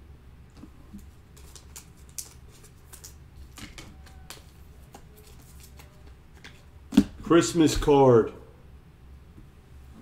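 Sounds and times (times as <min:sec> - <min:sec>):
trading cards flipped by hand: 0:00.6 - 0:06.6.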